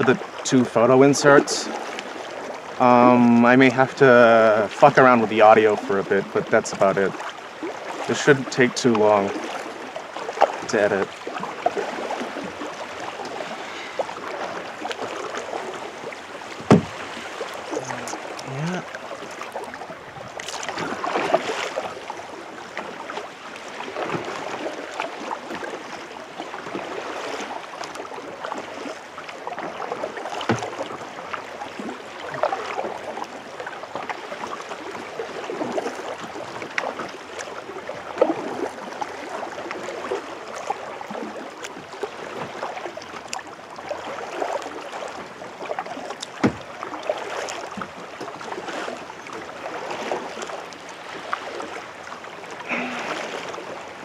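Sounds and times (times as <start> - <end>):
paddle splashing in water: 0.0 - 54.0
sharp knocks: 16.6 - 17.0.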